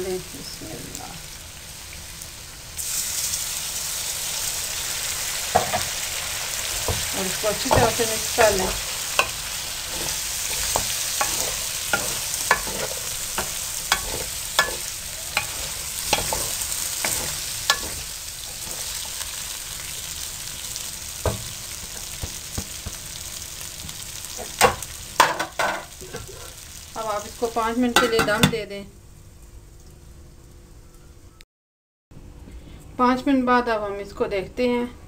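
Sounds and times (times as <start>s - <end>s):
potatoes sizzling in hot oil: 0.0s - 30.6s
utensil knocking and scraping pan: 6.8s - 19.2s, 21.2s - 23.1s, 28.0s - 28.6s.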